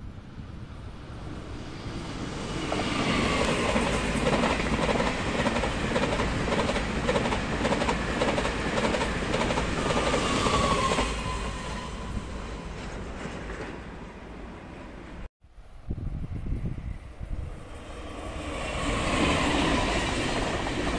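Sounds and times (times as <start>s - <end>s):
train passing at speed: 0.0s - 15.3s, 16.2s - 20.9s.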